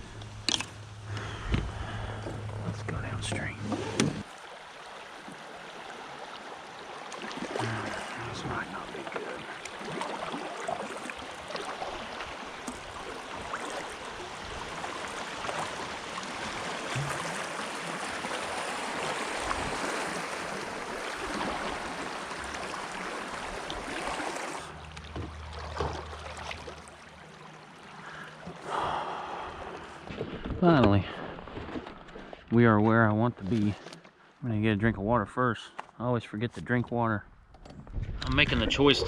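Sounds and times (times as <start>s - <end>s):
low hum: 0.0s - 4.2s
rushing river water: 0.0s - 30.2s.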